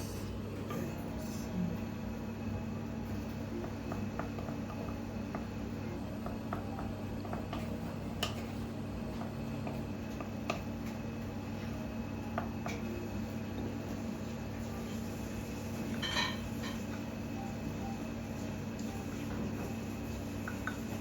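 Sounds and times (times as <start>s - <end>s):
low room hum: 0.0s - 21.0s
tableware clicking and tapping: 16.0s - 16.9s.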